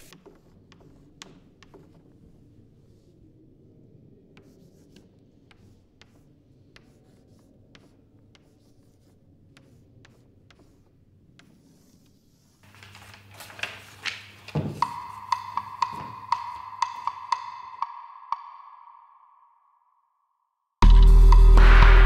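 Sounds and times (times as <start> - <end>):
chalk scratching on a blackboard: 0.0 - 3.1, 4.4 - 12.7.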